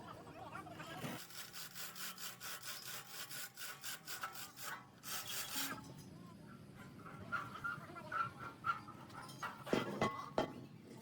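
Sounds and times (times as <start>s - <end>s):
hand saw strokes: 1.2s - 5.8s.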